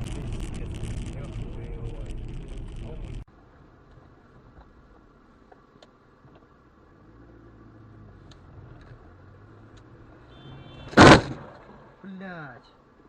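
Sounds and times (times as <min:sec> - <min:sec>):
car engine running: 0:00.0 - 0:10.2
car collision bang: 0:10.4 - 0:12.0.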